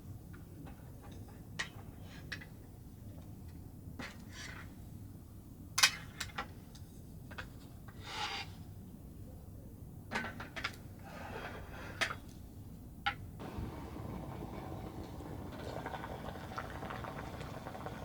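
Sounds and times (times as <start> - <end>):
steady low rumble: 13.4 - 18.0.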